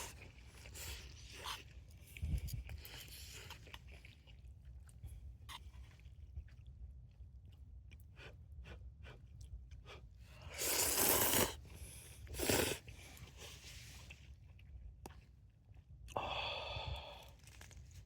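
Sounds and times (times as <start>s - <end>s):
chewing and light clicks: 0.0s - 10.0s, 12.9s - 16.2s, 17.2s - 18.0s
slurping noodles: 10.4s - 14.1s.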